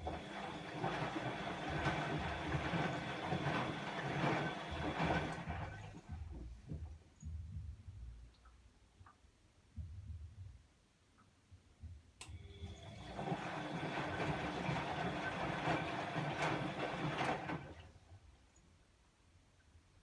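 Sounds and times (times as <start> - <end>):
washing machine drum motor running: 0.0 - 7.0, 12.5 - 17.8.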